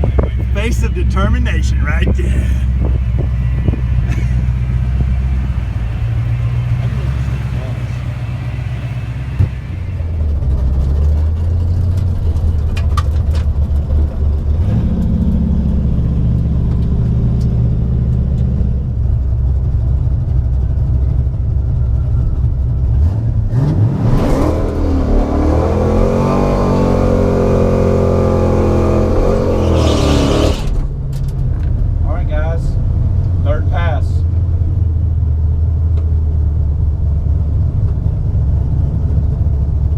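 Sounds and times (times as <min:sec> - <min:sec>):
drag car engine revving: 0:00.0 - 0:18.4, 0:22.9 - 0:30.9.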